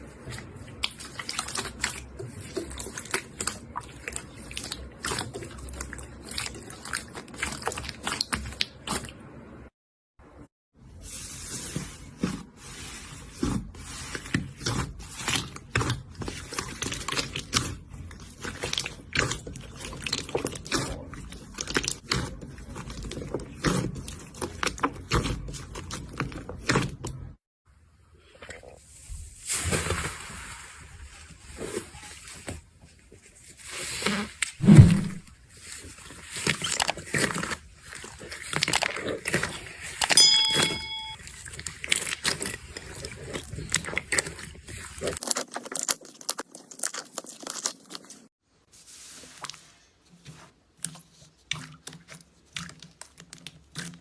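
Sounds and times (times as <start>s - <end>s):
slime squelches: 0.0s - 27.4s, 28.0s - 40.0s, 41.0s - 54.0s
loud thump: 34.6s - 35.3s.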